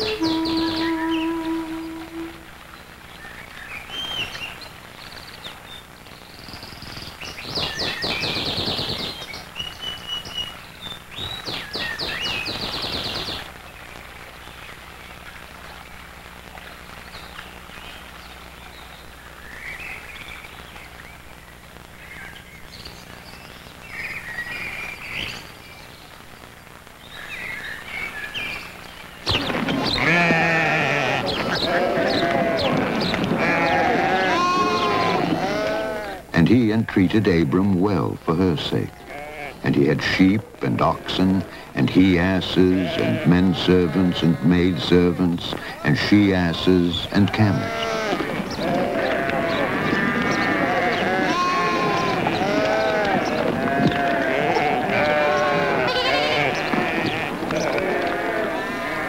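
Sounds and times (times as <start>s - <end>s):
held musical note: 0.0s - 2.5s
birds chirping and trilling: 0.0s - 13.5s, 27.1s - 59.0s.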